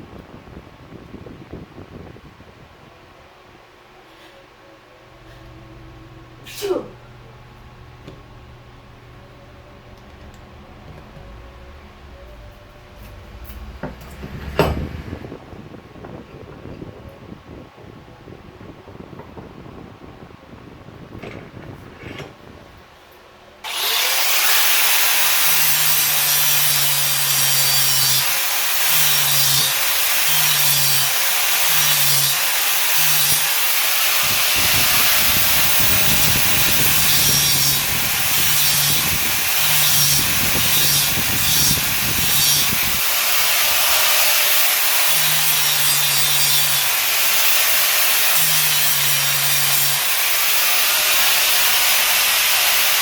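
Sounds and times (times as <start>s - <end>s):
power tool grinding: 10.0s - 15.4s, 23.6s - 53.0s.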